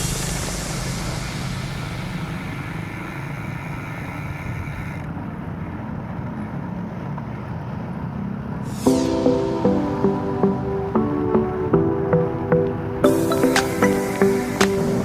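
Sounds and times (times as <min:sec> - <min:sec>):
music with struck notes: 0:08.9 - 0:15.0.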